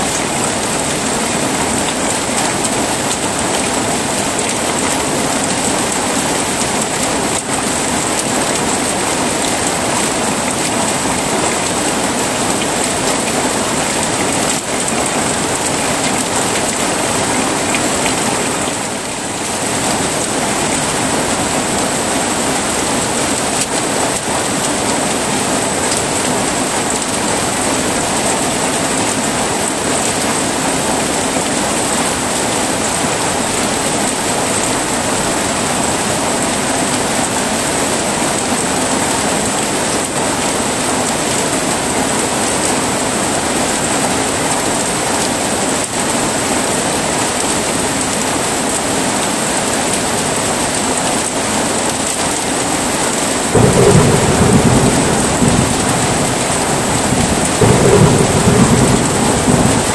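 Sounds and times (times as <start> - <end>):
heavy rain falling: 0.0 - 59.9
low rumble of thunder: 53.5 - 59.9.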